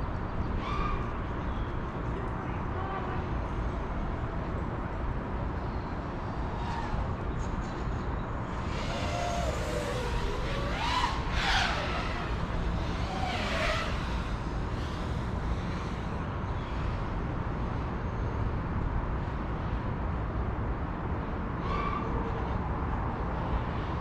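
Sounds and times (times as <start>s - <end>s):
steady rushing noise: 6.0s - 17.9s
quadcopter motors whining: 8.4s - 17.0s.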